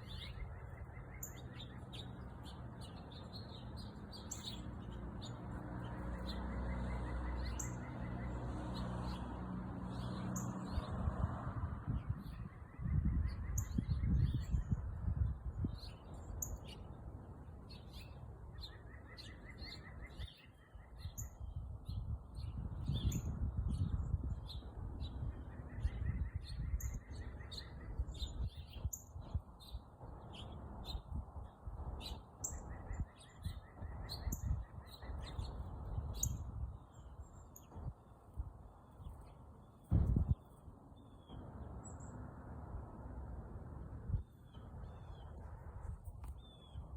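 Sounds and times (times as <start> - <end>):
bird trill: 0.0 - 5.4, 6.1 - 8.4
small birds chirping: 0.0 - 42.5, 44.0 - 46.9.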